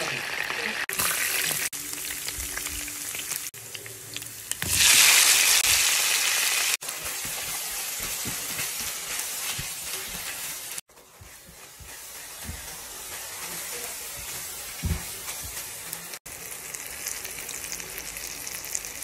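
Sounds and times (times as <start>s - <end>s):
vegetables frying in oil: 0.0s - 19.0s
spatula scraping a pan: 6.9s - 16.0s.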